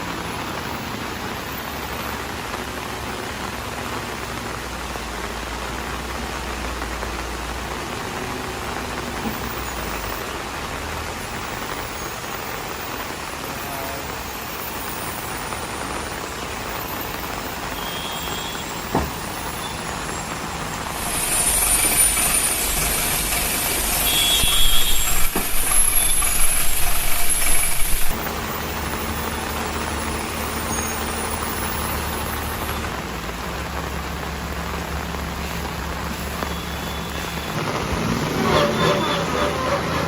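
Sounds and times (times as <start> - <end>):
loud hiss: 13.4 - 37.8
truck engine hum: 18.7 - 40.0.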